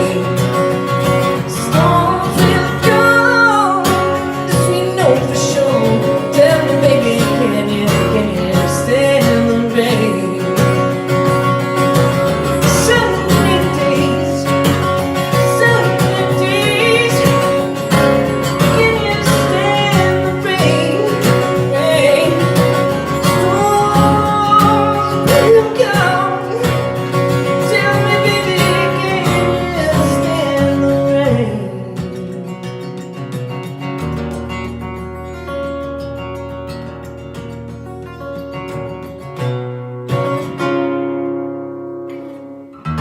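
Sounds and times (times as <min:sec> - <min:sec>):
person singing: 0:00.0 - 0:11.6, 0:12.2 - 0:33.0
acoustic guitar: 0:00.0 - 0:43.0.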